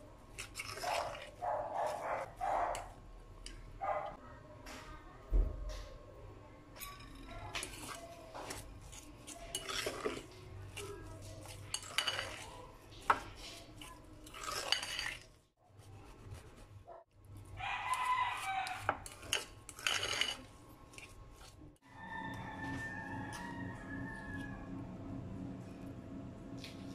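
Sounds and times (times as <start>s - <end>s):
fork scraping ceramic bowl: 0.3s - 2.9s, 7.3s - 16.7s, 17.4s - 21.6s.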